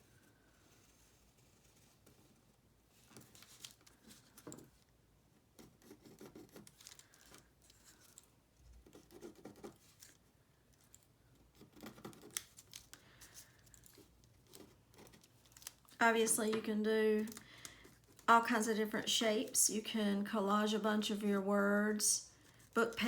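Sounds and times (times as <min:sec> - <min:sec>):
paper rustling: 0:06.3 - 0:08.3, 0:11.7 - 0:18.3
scissors snipping paper: 0:11.6 - 0:15.8.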